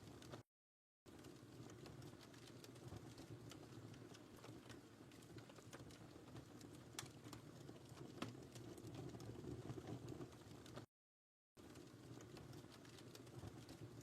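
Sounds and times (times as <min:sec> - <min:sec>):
wood fire crackling: 0:00.0 - 0:00.4, 0:01.1 - 0:10.9, 0:11.6 - 0:14.0.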